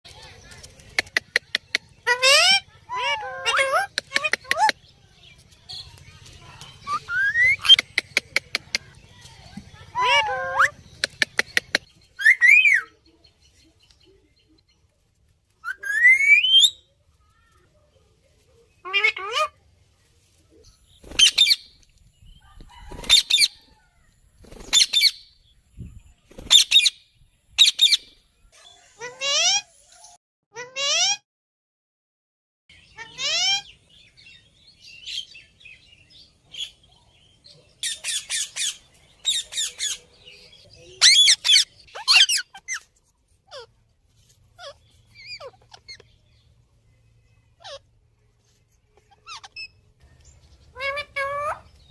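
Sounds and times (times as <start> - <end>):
parrot squawking: 2.0 - 4.7, 9.9 - 10.8, 41.0 - 42.8, 43.5 - 43.7, 44.6 - 46.0, 47.6 - 47.8, 49.1 - 49.8, 50.7 - 51.7.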